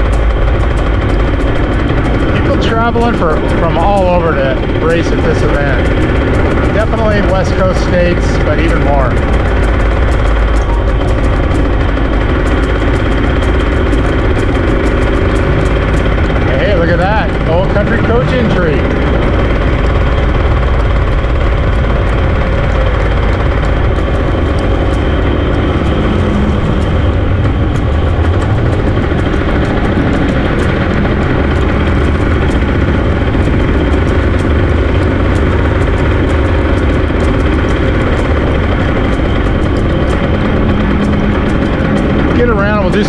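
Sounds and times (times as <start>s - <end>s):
small vehicle engine running: 0.0s - 43.0s.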